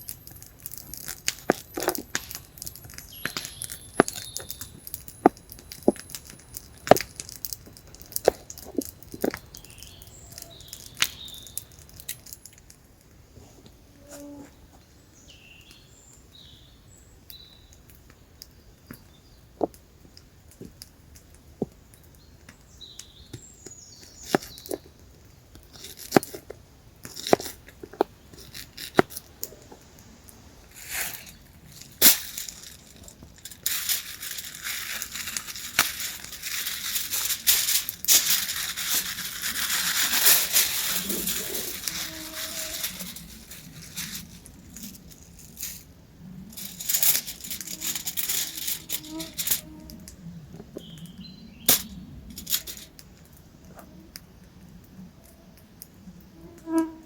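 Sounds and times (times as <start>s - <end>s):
crunching and crinkling handling: 0.0s - 14.8s, 23.3s - 53.9s
steady crackling hiss: 0.0s - 57.0s.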